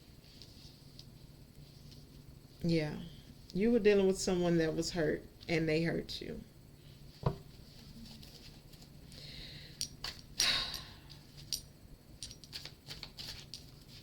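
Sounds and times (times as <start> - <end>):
cards riffling: 12.4 - 14.0.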